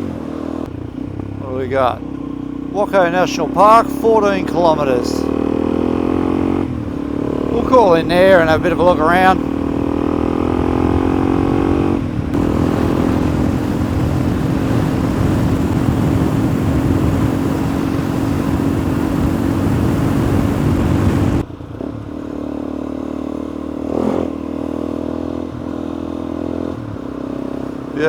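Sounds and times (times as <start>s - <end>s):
motorcycle engine running: 0.0s - 28.0s
wind noise on microphone: 6.6s - 22.0s.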